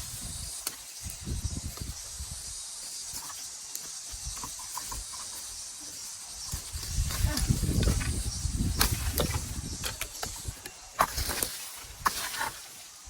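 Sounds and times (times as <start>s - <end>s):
wind rumbling on microphone: 0.0s - 2.7s, 6.4s - 12.5s
outdoor hiss: 0.0s - 13.0s.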